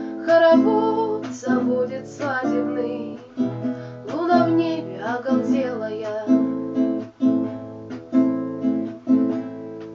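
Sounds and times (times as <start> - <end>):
person singing folk song: 0.0 - 7.6
acoustic guitar strumming: 0.0 - 9.9.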